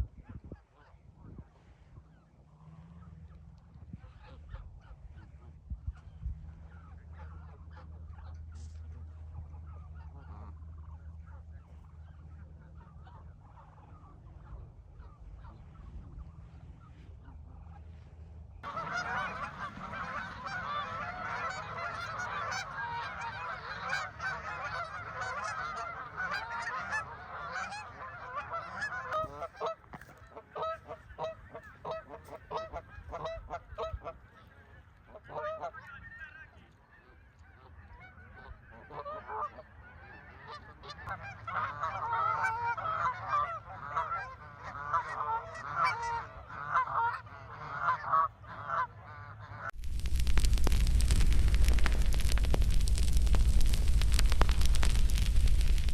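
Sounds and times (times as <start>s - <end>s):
geese honking: 18.6s - 55.9s.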